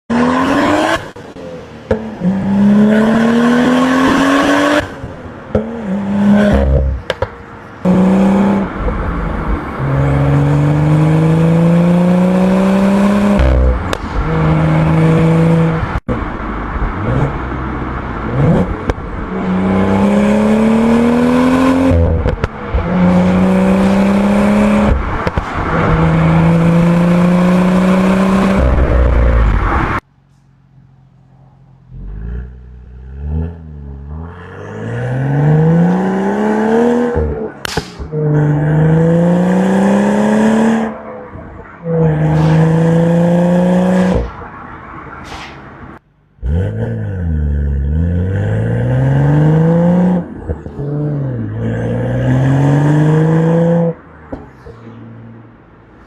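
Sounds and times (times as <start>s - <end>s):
car engine accelerating hard: 7.8s - 16.1s, 16.9s - 30.0s, 30.9s - 44.4s, 46.3s - 54.0s.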